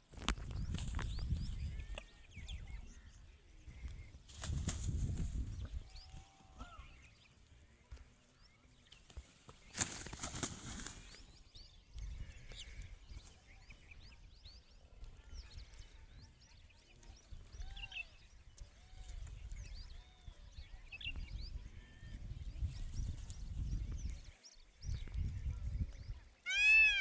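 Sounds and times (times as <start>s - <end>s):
birds chirping and peeping: 0.2s - 27.0s
loud rustle: 9.7s - 11.2s.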